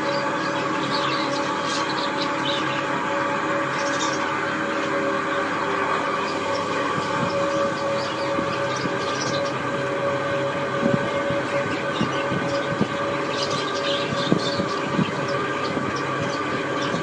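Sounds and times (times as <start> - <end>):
budgerigars chattering and chirping: 0.0 - 3.0, 3.6 - 4.4, 6.2 - 9.6, 11.5 - 17.0
steady hum: 0.0 - 17.0.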